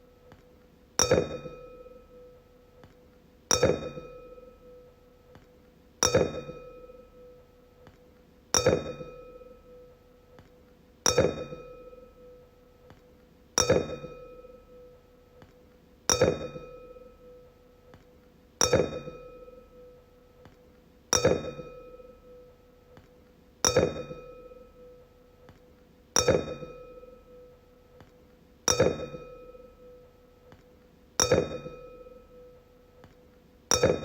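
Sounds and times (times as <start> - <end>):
wine glass ringing tap: 1.0 - 2.0, 13.6 - 14.8, 23.6 - 25.0, 26.2 - 27.4, 28.7 - 30.0, 31.2 - 32.5, 33.7 - 34.0.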